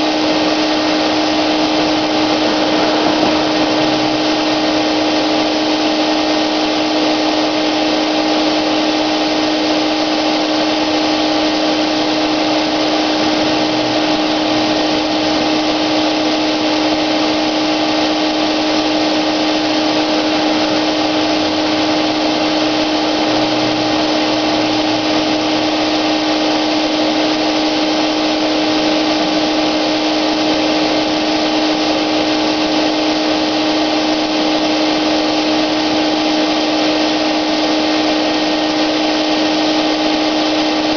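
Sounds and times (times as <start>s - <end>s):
paint sprayer motor whine: 0.0s - 40.9s
rush of air: 0.1s - 7.4s.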